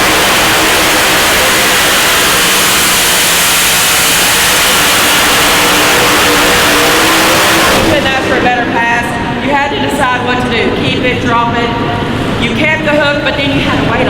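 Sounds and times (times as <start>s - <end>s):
truck engine running under load: 0.0s - 10.0s.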